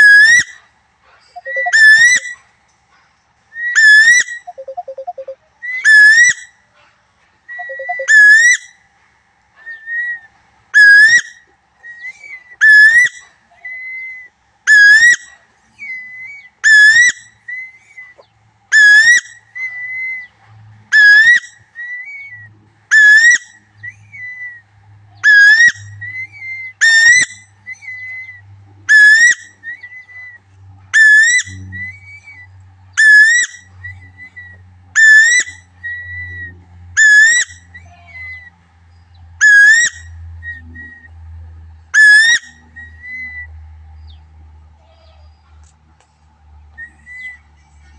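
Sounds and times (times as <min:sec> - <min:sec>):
faint low hum: 0:00.0 - 0:47.9
soft short whistles: 0:01.2 - 0:02.4, 0:07.5 - 0:08.2
bird whistled call: 0:01.3 - 0:02.4, 0:03.6 - 0:06.4, 0:07.5 - 0:08.6, 0:21.0 - 0:30.4, 0:46.8 - 0:47.5.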